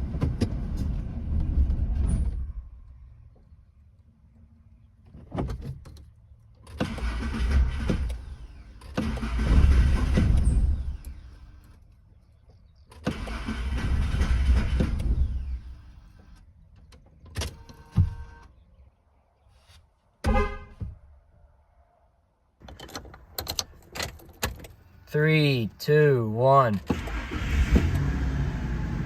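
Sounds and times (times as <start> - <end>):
pickup engine cranking and stalling: 6.6 - 11.7, 12.8 - 16.4, 26.8 - 29.0.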